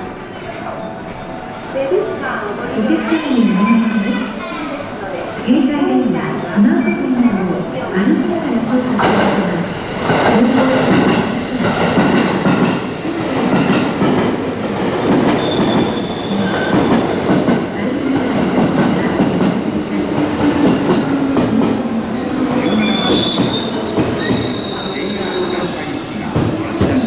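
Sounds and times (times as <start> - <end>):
train wheels rumbling on rails: 8.8 - 27.0
high wheel squeal: 22.6 - 27.0.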